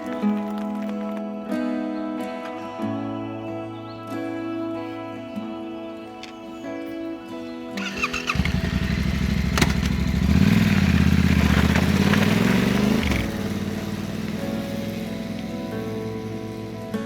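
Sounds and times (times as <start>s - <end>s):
motorcycle engine starting and revving: 7.8s - 17.0s.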